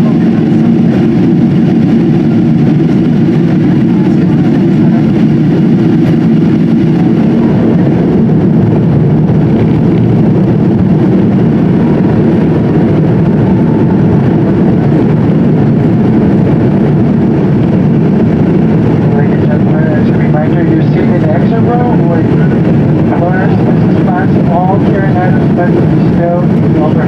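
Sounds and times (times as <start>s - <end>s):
airliner cabin engine and airflow noise: 0.0s - 27.0s.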